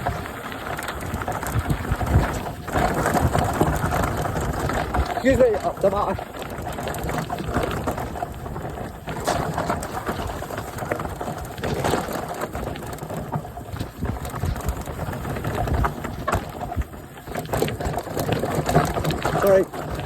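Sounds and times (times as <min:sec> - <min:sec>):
bike rattling: 0:00.0 - 0:20.0
tyres crunching on stones: 0:00.0 - 0:20.0.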